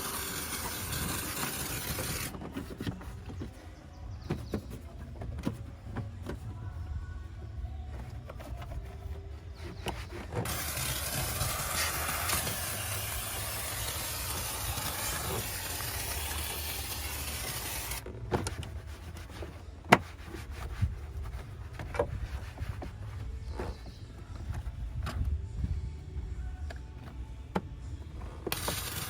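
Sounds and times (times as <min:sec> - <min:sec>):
steam cleaner hissing: 0:00.0 - 0:02.3, 0:10.4 - 0:18.0, 0:28.5 - 0:29.0.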